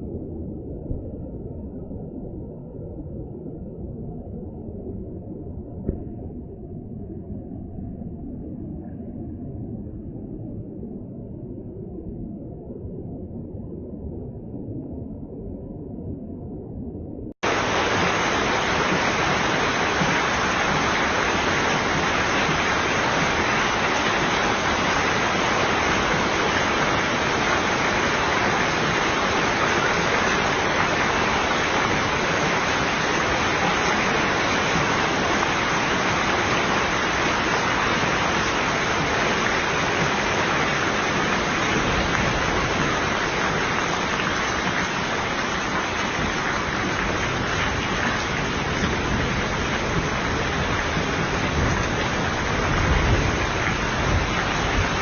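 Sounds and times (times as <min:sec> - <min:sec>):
heavy rain pouring: 0:17.4 - 0:55.0.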